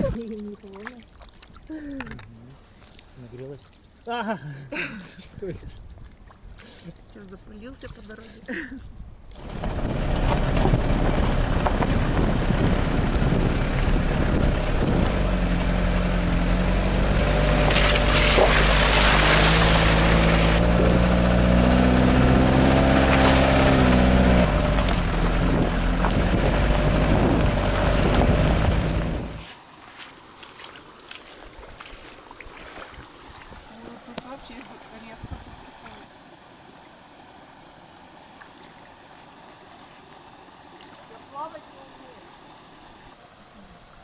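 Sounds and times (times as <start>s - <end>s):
wind noise on microphone: 8.8s - 18.7s, 22.2s - 29.4s, 35.2s - 35.7s
engine running: 9.4s - 29.4s.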